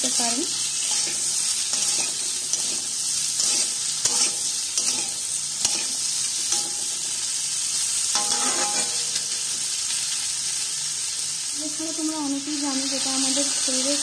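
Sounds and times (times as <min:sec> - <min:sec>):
vegetables sizzling in oil: 0:00.0 - 0:14.0
metal spatula scraping: 0:00.5 - 0:07.3, 0:08.0 - 0:09.4.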